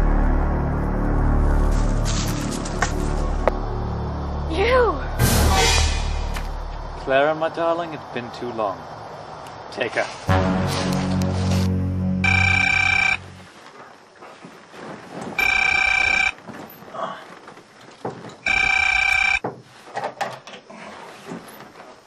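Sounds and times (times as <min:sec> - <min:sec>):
low sustained music chord: 0:00.0 - 0:05.8, 0:10.3 - 0:13.5
telephone ringing: 0:12.2 - 0:13.3, 0:15.4 - 0:16.4, 0:18.4 - 0:19.4.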